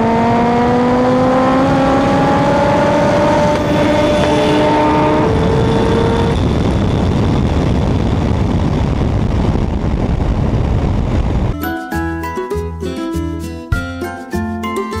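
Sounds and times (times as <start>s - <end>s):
loud car engine running: 0.0s - 11.5s.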